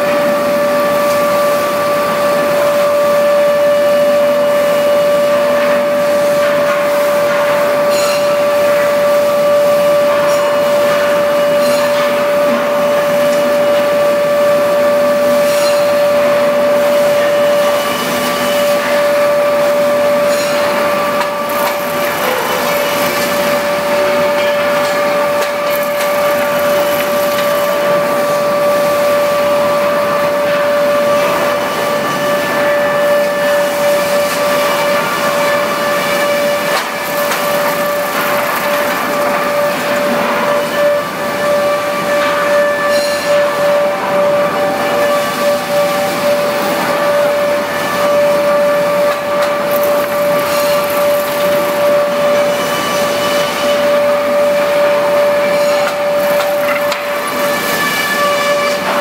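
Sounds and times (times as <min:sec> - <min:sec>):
wood planing machine whining: 0:00.0 - 0:59.0.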